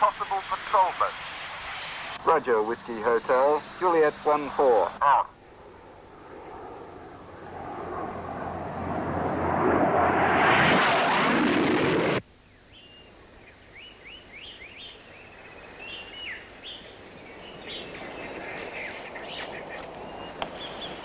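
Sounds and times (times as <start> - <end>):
jet aircraft passing: 0.0 - 12.2
birds chirping: 12.3 - 21.0.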